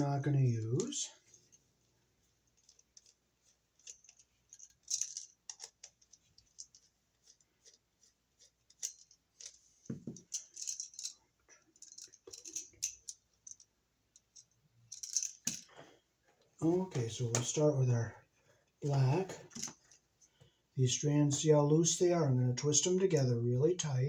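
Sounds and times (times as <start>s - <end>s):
screwdriver metallic clicks and scrapes: 3.8s - 7.8s.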